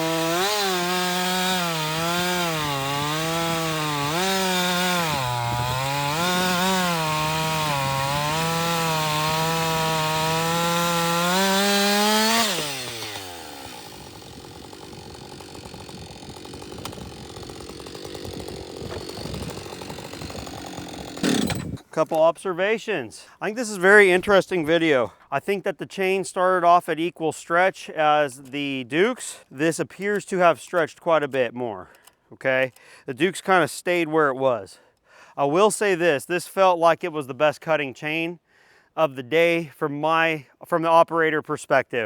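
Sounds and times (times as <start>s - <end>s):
chainsaw cutting wood: 0.0s - 22.0s.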